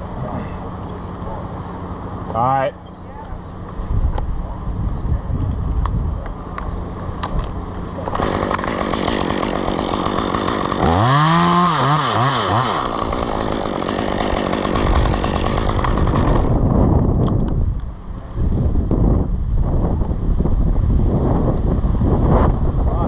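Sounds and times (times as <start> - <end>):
chainsaw running: 7.4 - 18.2.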